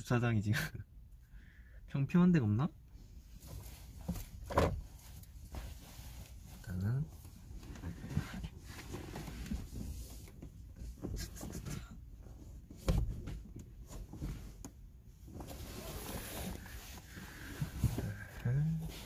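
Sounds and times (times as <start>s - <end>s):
fabric rustling: 15.3s - 19.0s.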